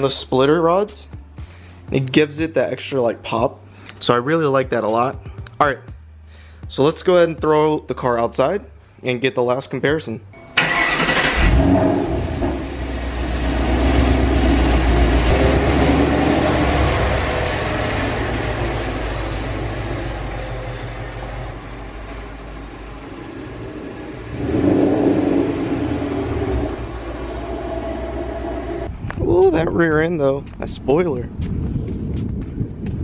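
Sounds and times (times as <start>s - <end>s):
car engine rumble: 10.3s - 33.0s.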